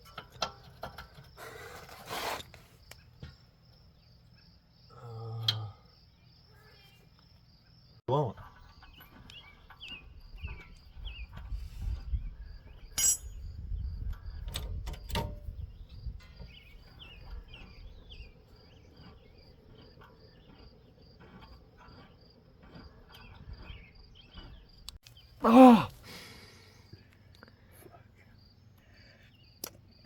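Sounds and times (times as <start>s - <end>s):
insects chirping: 0.0s - 8.0s, 8.6s - 30.0s
metallic clinks of tools: 12.9s - 13.5s.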